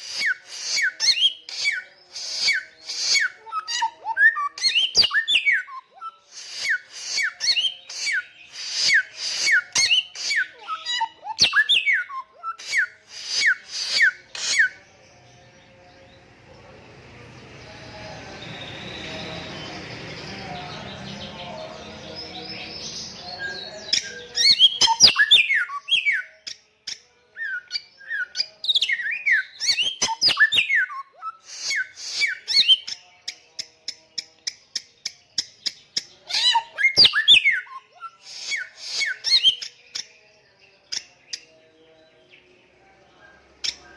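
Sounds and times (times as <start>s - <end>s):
bird whistling song: 0.0s - 14.8s, 23.3s - 34.8s, 35.4s - 40.2s.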